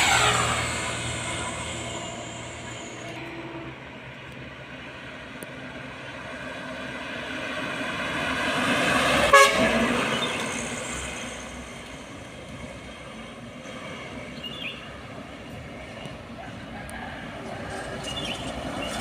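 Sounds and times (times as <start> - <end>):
heavy truck passing: 0.0 - 14.3
truck horn toot: 9.3 - 10.5.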